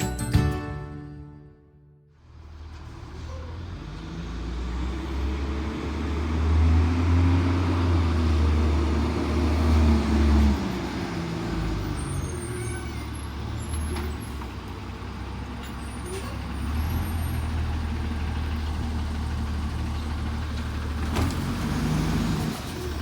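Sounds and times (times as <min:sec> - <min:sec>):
garbage truck engine revving: 0:02.2 - 0:12.5, 0:16.4 - 0:23.0.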